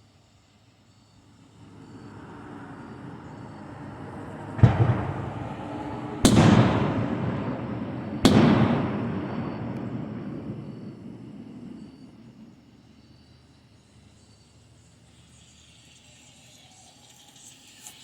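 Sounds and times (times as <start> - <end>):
fireworks booming: 1.4 - 13.8
low rumble: 1.6 - 12.3.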